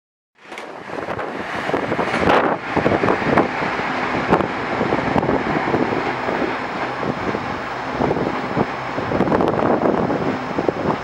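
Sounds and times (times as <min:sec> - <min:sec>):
train wheels rumbling on rail: 0:00.4 - 0:11.0
wind buffeting microphone: 0:00.5 - 0:11.0.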